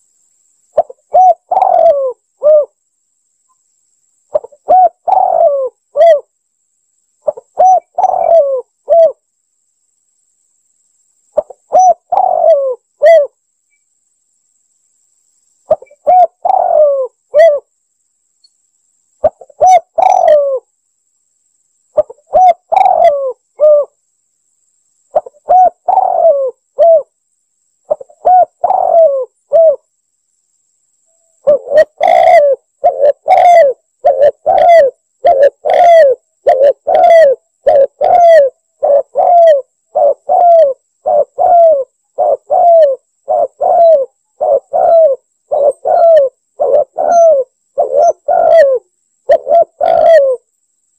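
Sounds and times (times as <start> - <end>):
dove cooing: 0.8 - 2.8, 4.3 - 6.3, 7.2 - 9.2, 11.4 - 13.4, 15.7 - 17.7, 19.2 - 20.7, 22.0 - 24.0, 25.1 - 27.1, 27.9 - 29.9, 31.4 - 50.5.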